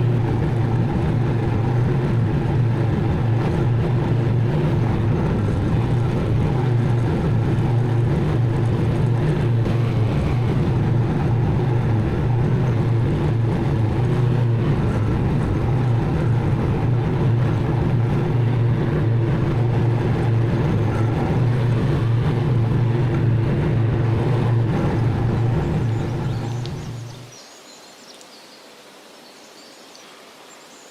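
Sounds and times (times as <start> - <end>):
mower engine droning: 0.0 - 27.4.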